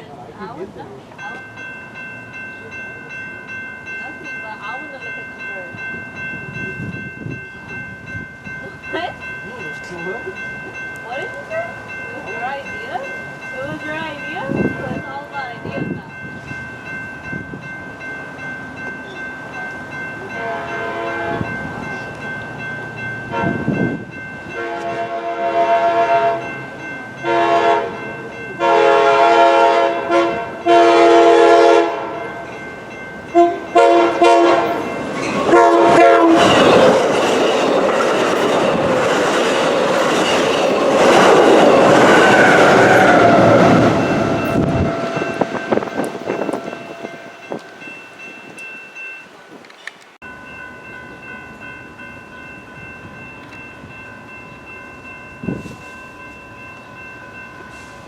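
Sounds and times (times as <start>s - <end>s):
train wheels rumbling on rails: 4.1s - 48.7s
train horn blasts: 20.4s - 21.6s, 23.3s - 23.7s, 24.5s - 26.5s, 27.2s - 28.0s, 28.6s - 32.4s, 33.3s - 36.7s, 42.2s - 47.5s.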